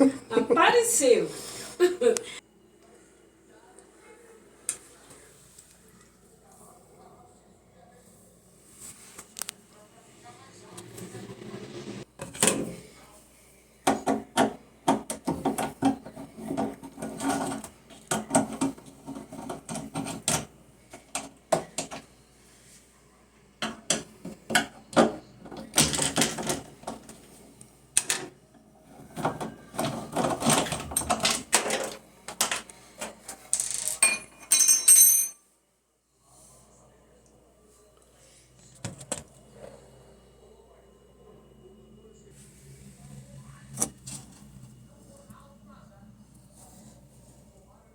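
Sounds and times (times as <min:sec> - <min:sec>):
clattering and knocking: 0:13.9 - 0:20.5, 0:29.0 - 0:33.2.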